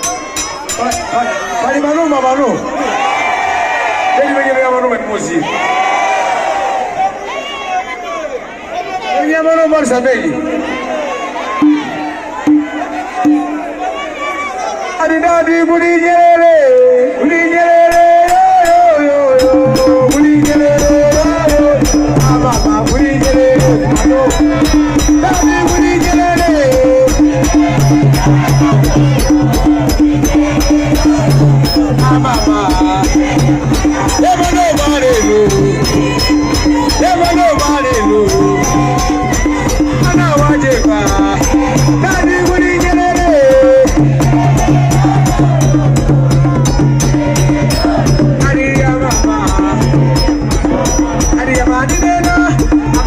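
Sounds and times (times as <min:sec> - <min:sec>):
gliding melody line: 0:00.0 - 0:01.6
sliding melody line: 0:00.0 - 0:01.6, 0:19.4 - 0:51.6
shaker or hi-hat ticking: 0:19.4 - 0:53.0.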